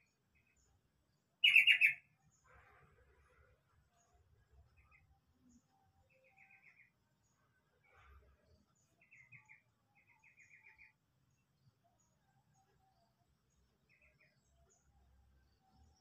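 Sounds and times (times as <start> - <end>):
high bird chirps: 1.4 - 2.1.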